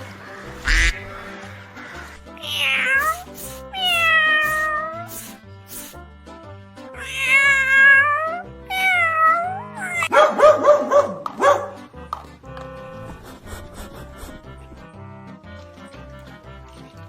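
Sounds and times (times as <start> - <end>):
background music: 0.0 - 17.0
cat meowing: 0.6 - 1.2, 2.2 - 5.4, 7.0 - 10.1.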